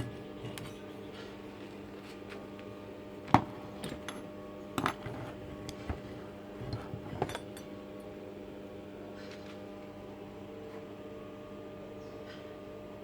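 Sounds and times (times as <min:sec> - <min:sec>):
metallic clinks and knocks: 0:00.0 - 0:00.9, 0:06.6 - 0:07.7
steady hum: 0:00.0 - 0:13.0.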